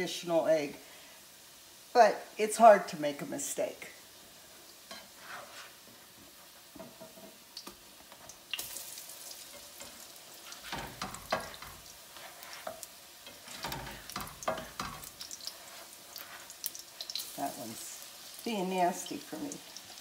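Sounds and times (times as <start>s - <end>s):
pancakes sizzling in a pan: 0.6s - 2.4s, 3.2s - 20.0s
spatula scraping a pan: 4.9s - 7.4s, 9.4s - 17.2s.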